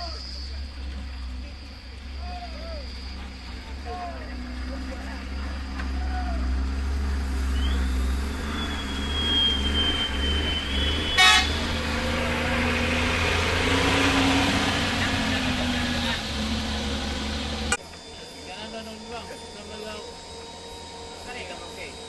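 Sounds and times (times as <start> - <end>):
high whistle-like tone: 0.0 - 12.7
hiss: 0.0 - 17.7
heavy vehicle engine running: 0.0 - 17.8
horn toot: 8.4 - 12.2.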